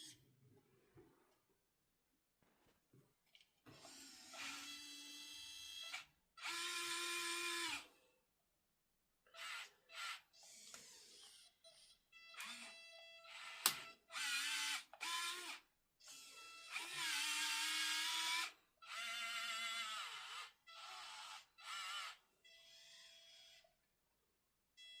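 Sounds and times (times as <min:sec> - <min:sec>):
small electric motors whining: 0:03.7 - 0:07.8, 0:09.4 - 0:23.7.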